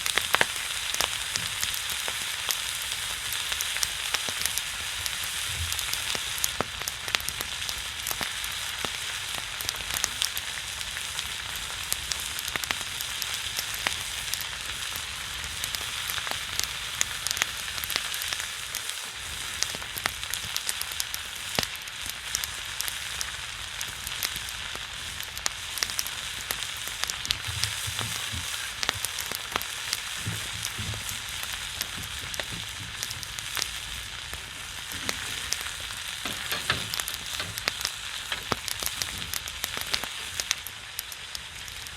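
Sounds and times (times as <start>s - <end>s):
pork fat sizzling and popping: 0.0s - 41.9s.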